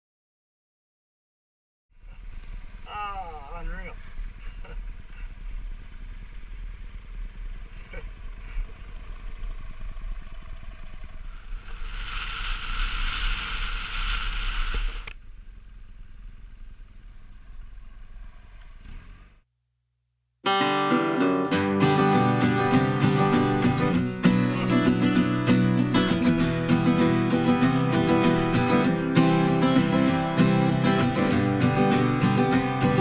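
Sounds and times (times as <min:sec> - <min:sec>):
motorcycle engine running: 0:03.4 - 0:11.7, 0:21.8 - 0:33.0
acoustic guitar music: 0:20.4 - 0:33.0.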